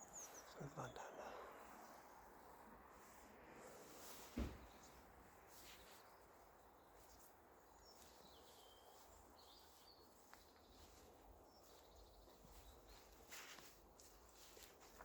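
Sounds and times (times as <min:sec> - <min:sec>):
faint bird chirps: 0:00.0 - 0:02.1
soft rustle: 0:01.5 - 0:15.0.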